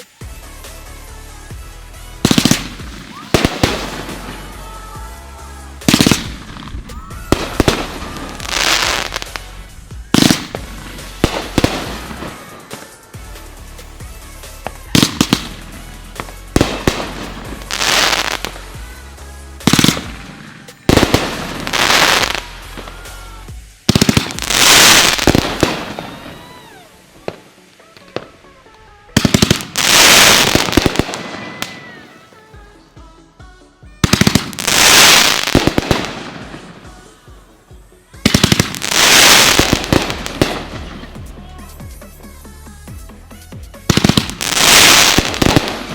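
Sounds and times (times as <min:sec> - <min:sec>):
firework crackle: 0:00.0 - 0:32.5, 0:34.0 - 0:45.9
firework launch reports: 0:00.0 - 0:32.5, 0:34.0 - 0:37.4, 0:38.2 - 0:45.9
background music: 0:00.0 - 0:45.9.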